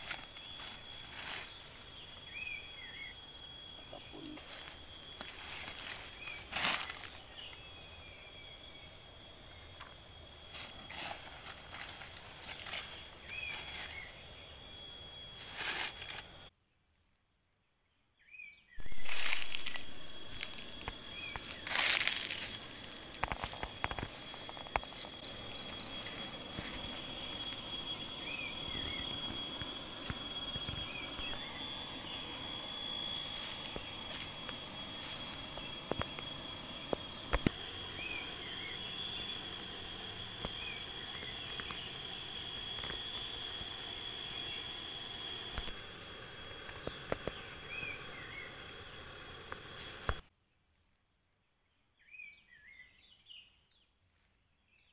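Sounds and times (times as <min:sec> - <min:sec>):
high insect drone: 0:00.0 - 0:16.5, 0:18.8 - 0:50.3
bird chirps: 0:00.3 - 0:09.0, 0:12.1 - 0:14.4, 0:24.7 - 0:26.8, 0:28.1 - 0:29.3.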